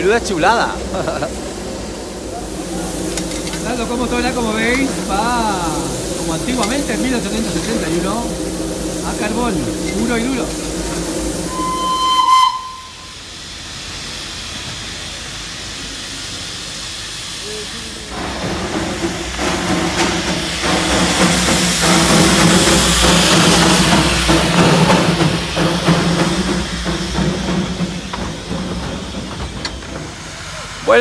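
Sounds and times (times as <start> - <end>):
locomotive chuffs: 0.0 - 31.0
steam hissing: 0.0 - 31.0
steam whistle blast: 11.4 - 13.2.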